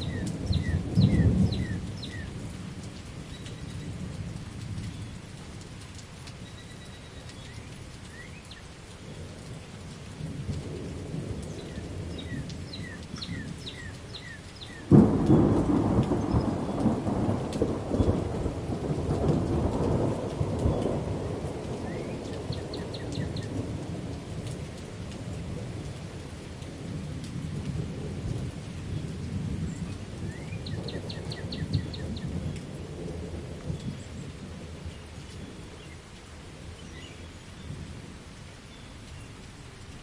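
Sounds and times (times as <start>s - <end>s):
low rumbling thunder: 0.0s - 2.7s, 14.8s - 35.5s
steady rain: 0.0s - 40.0s
loud thunderclap: 14.9s - 21.8s.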